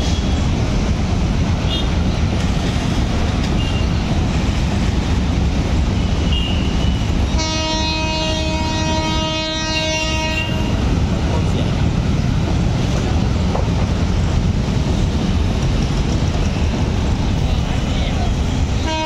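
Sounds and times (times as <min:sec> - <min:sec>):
freight train rumbling: 0:00.0 - 0:19.0
train horn blast: 0:06.3 - 0:10.8, 0:18.8 - 0:19.0.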